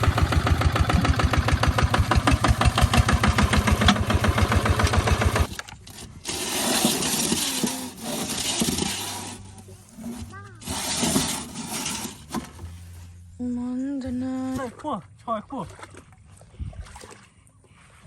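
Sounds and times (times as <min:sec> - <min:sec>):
tractor engine chugging: 0:00.0 - 0:05.5.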